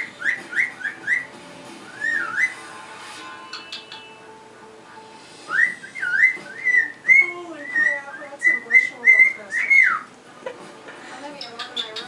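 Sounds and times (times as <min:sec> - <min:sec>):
bird whistling a tune: 0:00.0 - 0:02.7, 0:03.5 - 0:04.2, 0:05.4 - 0:10.1.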